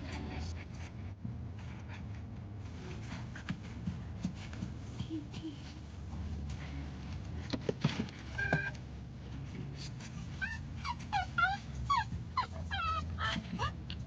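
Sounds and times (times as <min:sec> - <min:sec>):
dog whimpering: 0:10.3 - 0:14.0.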